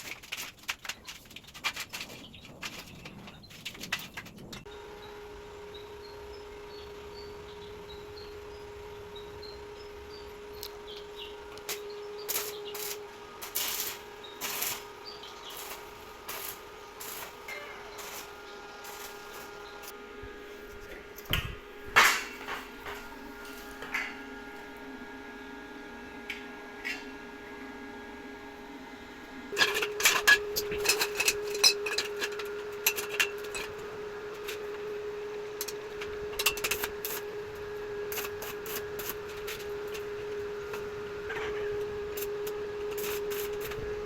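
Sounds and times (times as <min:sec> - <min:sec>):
steady hum: 0:01.7 - 0:44.0
tools tapping metal: 0:29.6 - 0:33.7.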